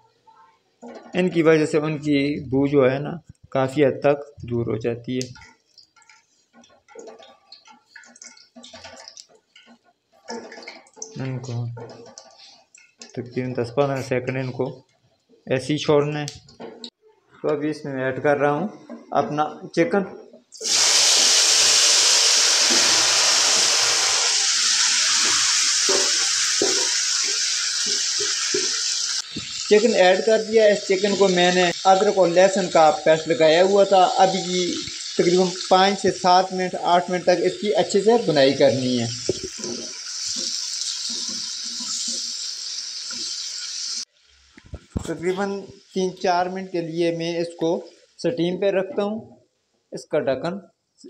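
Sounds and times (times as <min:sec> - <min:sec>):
wooden spatula scraping a pan: 0:05.4 - 0:11.0, 0:11.7 - 0:13.1
chicken sizzling in hot oil: 0:20.6 - 0:44.5.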